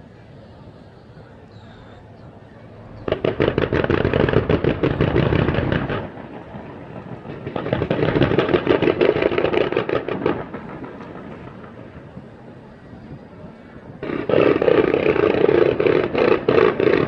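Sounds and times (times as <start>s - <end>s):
fireworks crackling: 2.7s - 12.6s, 13.5s - 17.0s.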